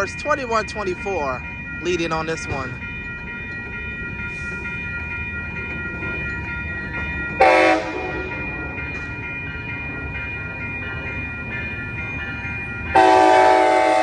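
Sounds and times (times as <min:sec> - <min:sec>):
train rumbling past: 0:00.0 - 0:14.0
loud train horn honk: 0:07.4 - 0:08.1, 0:13.0 - 0:14.0.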